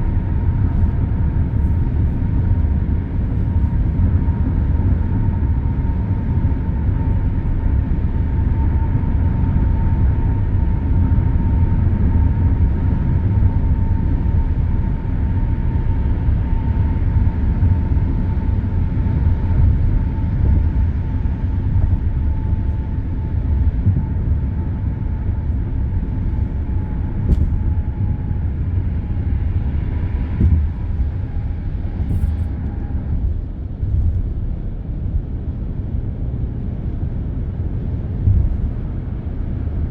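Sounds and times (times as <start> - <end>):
expressway traffic rumble: 0.0 - 39.9
faint whine dropping in pitch: 18.3 - 34.5.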